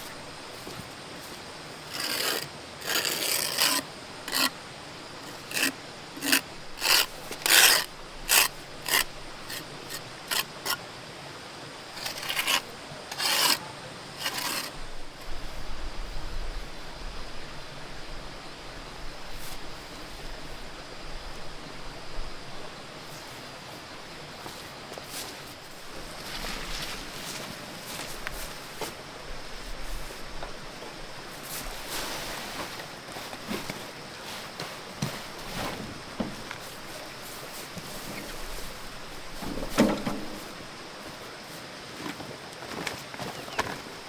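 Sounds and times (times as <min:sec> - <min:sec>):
rasp scraping wood: 0:01.8 - 0:04.6, 0:05.2 - 0:10.8, 0:12.0 - 0:14.8.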